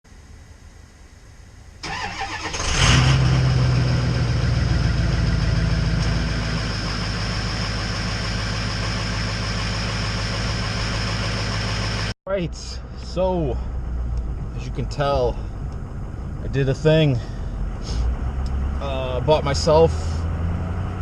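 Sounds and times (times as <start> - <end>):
diesel engine cranking on starter: 1.8 - 12.1
diesel engine idling: 3.2 - 20.4.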